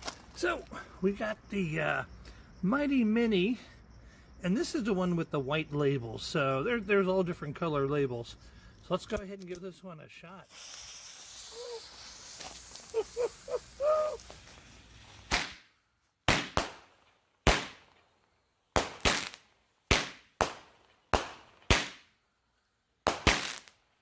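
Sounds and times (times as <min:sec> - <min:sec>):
fireworks sharp bangs: 0:10.5 - 0:15.7, 0:16.3 - 0:18.0, 0:18.8 - 0:22.1, 0:23.0 - 0:23.8.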